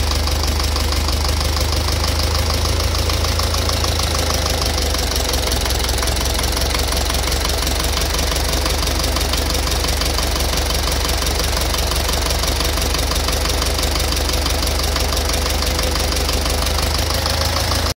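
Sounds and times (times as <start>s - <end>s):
engine idling: 0.0s - 18.0s
fast engine knock: 0.0s - 18.0s.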